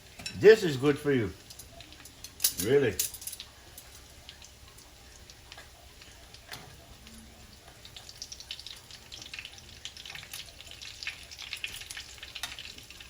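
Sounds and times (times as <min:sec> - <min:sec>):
fish frying in oil: 0:00.0 - 0:13.0.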